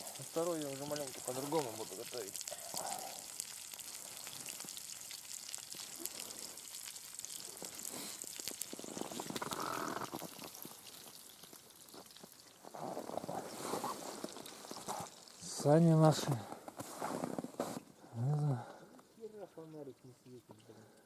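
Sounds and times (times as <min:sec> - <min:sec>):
steak sizzling in a frying pan: 0:00.0 - 0:12.8
rustling noise: 0:12.6 - 0:15.1, 0:16.6 - 0:17.9.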